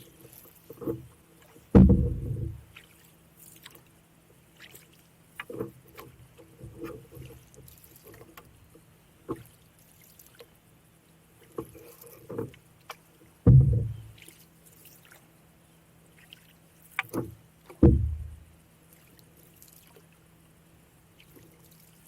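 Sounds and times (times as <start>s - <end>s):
paddle strokes in water: 0.0s - 22.0s
paddle knocking on canoe: 0.8s - 2.8s, 13.4s - 14.1s, 17.0s - 18.5s
loud low thump: 1.8s - 2.6s, 13.5s - 14.0s, 17.8s - 18.4s.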